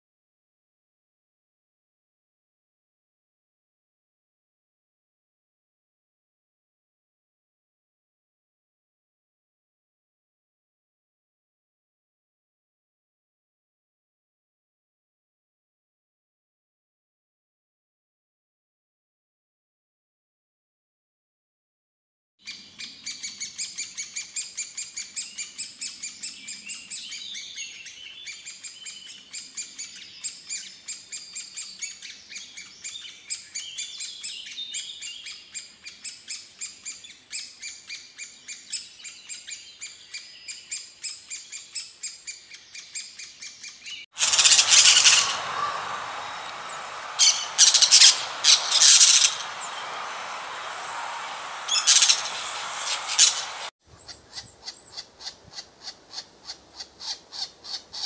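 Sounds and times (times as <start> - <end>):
harsh squawking bird calls: 22.5 - 58.0
high bird calls chirping: 22.5 - 58.0.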